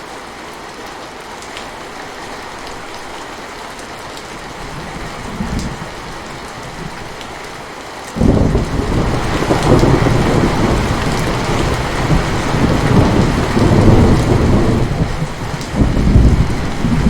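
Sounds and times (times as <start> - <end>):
steady rain: 0.0 - 17.0
rolling thunder rumble: 4.6 - 7.2, 8.2 - 17.0.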